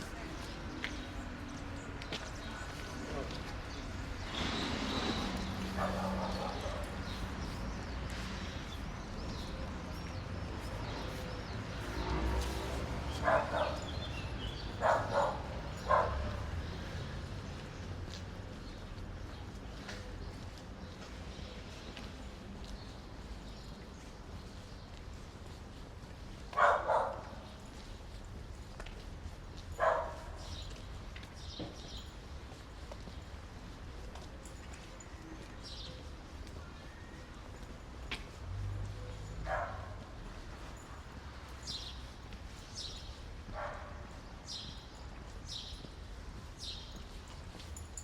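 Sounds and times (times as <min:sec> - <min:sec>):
dog barking: 0:05.6 - 0:07.1, 0:13.1 - 0:14.0, 0:14.7 - 0:16.5, 0:26.5 - 0:27.4, 0:29.8 - 0:30.5, 0:39.4 - 0:40.1, 0:43.5 - 0:44.2.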